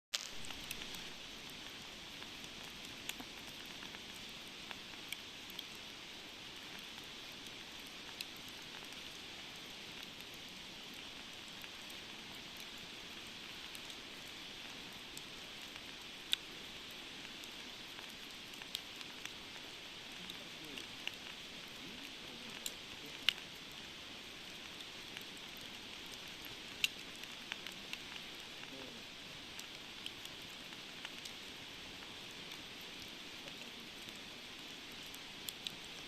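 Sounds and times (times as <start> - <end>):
campfire hissing: 0.1 - 36.0
fire popping and crackling: 0.1 - 36.0.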